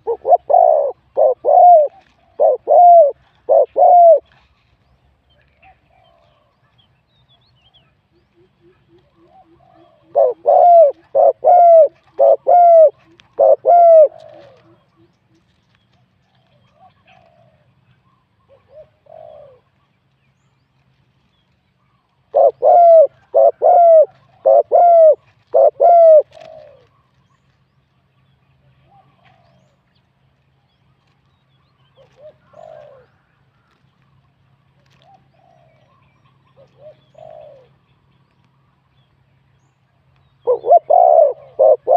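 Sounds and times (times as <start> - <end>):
distant dove coos: 0.0 - 4.4, 8.3 - 15.4, 16.3 - 19.8, 22.3 - 27.3, 28.8 - 29.9, 31.8 - 33.8, 34.8 - 37.9, 40.3 - 41.9
dove cooing: 0.0 - 4.4, 8.3 - 15.4, 16.3 - 19.8, 22.3 - 27.2, 28.7 - 29.9, 31.9 - 33.8, 34.8 - 37.8, 40.4 - 41.9.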